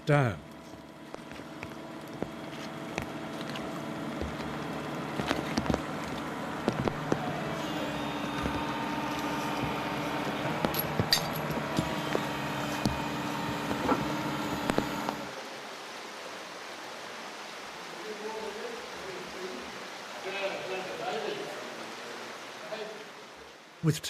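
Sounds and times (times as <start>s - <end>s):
engine running: 0.4s - 15.3s
steady hiss: 1.1s - 24.0s
knocks and clanks: 8.3s - 15.2s.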